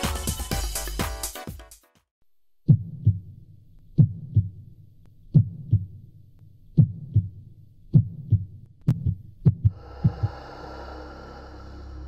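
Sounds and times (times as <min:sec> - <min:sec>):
heartbeat thumps: 0:02.7 - 0:03.3, 0:04.0 - 0:04.6, 0:05.3 - 0:06.0, 0:06.7 - 0:10.5.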